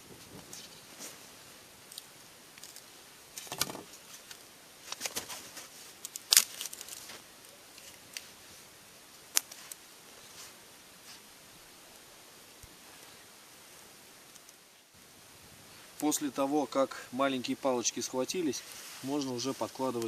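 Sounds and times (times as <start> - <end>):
faint rustle: 0.0 - 20.0
fire crackling and popping: 0.0 - 20.0.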